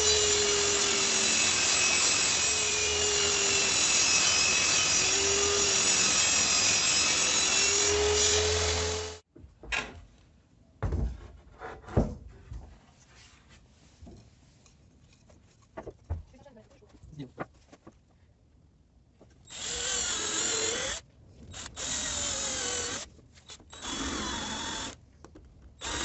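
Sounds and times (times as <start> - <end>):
wood router cutting wood: 0.0 - 9.2.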